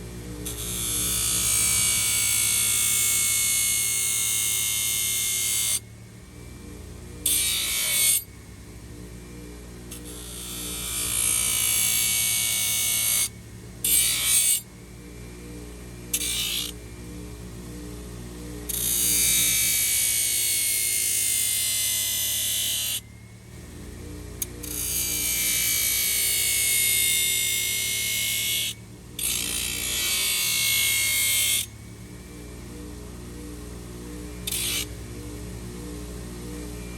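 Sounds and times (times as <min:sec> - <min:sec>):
quiet background music: 0:00.0 - 0:36.9
power tool grinding hoof: 0:24.4 - 0:31.7, 0:34.4 - 0:34.9.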